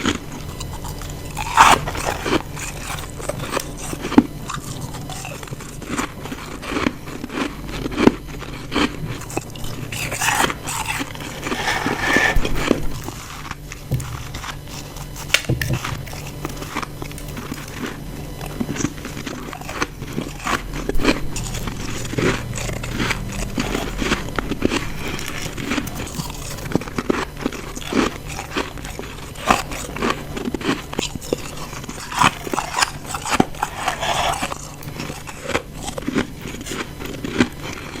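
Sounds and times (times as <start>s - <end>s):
person crunching ice: 0.0s - 38.0s.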